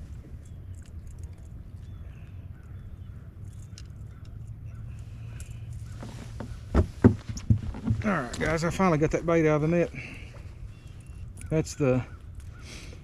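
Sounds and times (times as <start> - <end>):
faint scratching: 4.8 - 11.2
sharp knocks and rustles: 5.4 - 8.7.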